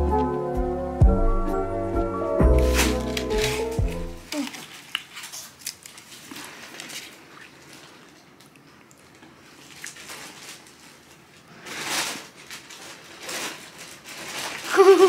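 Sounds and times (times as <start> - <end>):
macaron shell crunching: 2.6 - 7.1.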